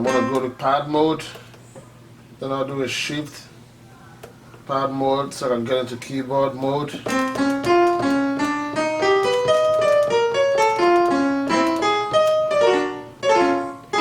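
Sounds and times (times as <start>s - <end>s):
piano-like keyboard notes: 0.0s - 1.2s, 6.6s - 14.0s.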